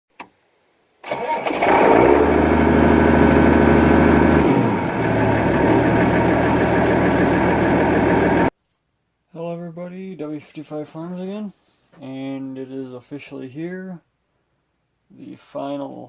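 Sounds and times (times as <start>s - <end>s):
engine starting and running: 1.0s - 8.5s.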